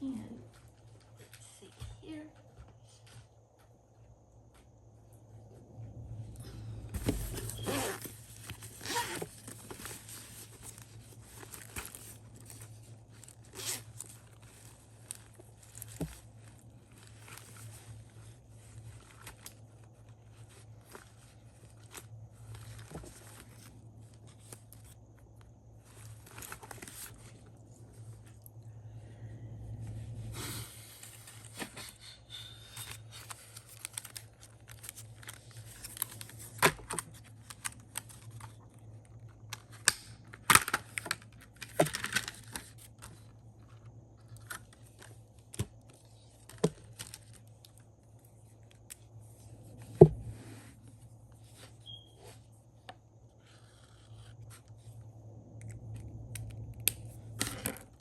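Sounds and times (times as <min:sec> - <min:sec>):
steady low hum: 0:00.0 - 0:58.0
paper rustling: 0:06.9 - 0:28.4, 0:30.7 - 0:52.5.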